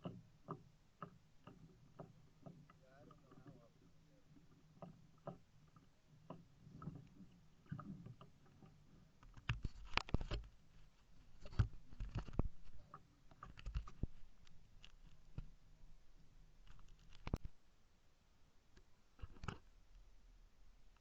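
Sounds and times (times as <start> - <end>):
paddle strokes splashing: 0.0 - 9.2.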